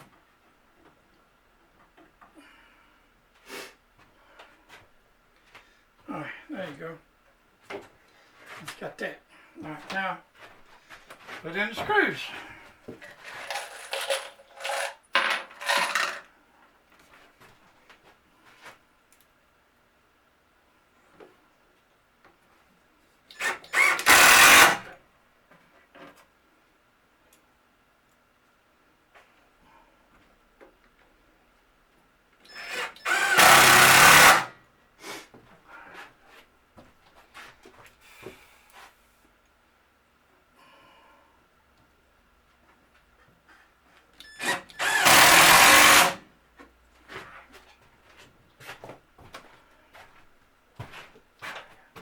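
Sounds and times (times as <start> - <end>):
metal screws clattering: 13.1 - 16.3
power drill driving a screw: 13.3 - 15.0, 23.3 - 24.9, 32.4 - 34.6, 44.2 - 46.2.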